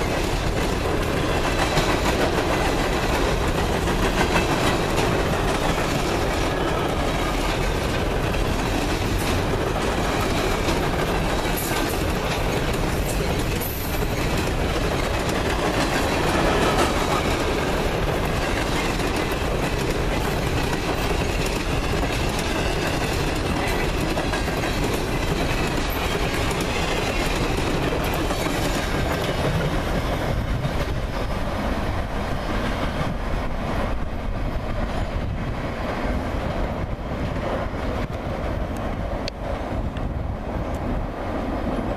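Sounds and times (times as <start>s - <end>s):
steel wheels clattering over rail joints: 0.0s - 38.9s
freight train rumble: 0.0s - 41.9s.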